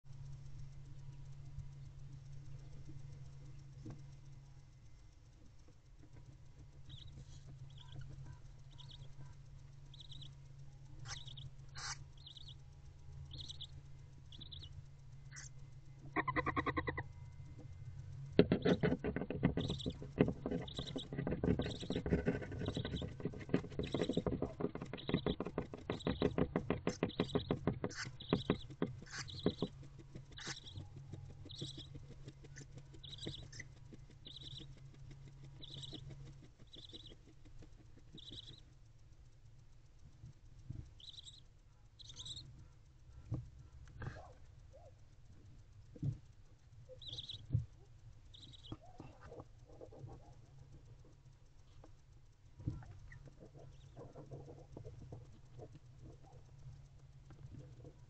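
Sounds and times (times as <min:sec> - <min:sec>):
rapid clicking and rustling: 0:01.8 - 0:16.3, 0:17.4 - 0:58.0
owl chick high peeps: 0:06.6 - 0:17.8, 0:18.4 - 0:38.8, 0:40.8 - 0:45.1, 0:46.8 - 0:52.0, 0:52.7 - 0:56.8.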